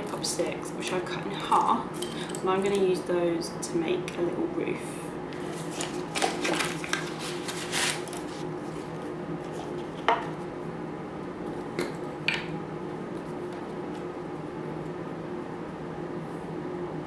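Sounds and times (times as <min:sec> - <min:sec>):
steady low hum: 0:00.0 - 0:17.0
wooden sticks clattering on table: 0:05.4 - 0:08.4.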